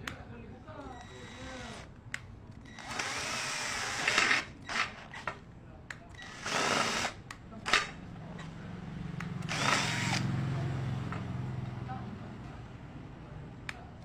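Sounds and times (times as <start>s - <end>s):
drill boring through steel: 1.0s - 1.9s, 2.7s - 4.9s, 6.2s - 7.2s, 9.5s - 10.2s.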